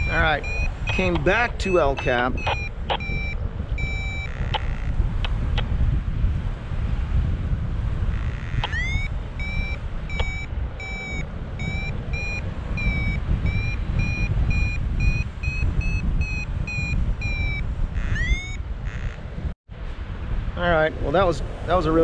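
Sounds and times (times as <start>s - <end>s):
rising electronic chirp: 0.0s - 4.9s, 8.2s - 19.2s
variometer beeping: 0.0s - 5.6s, 8.1s - 19.2s
wind on microphone: 0.0s - 22.0s.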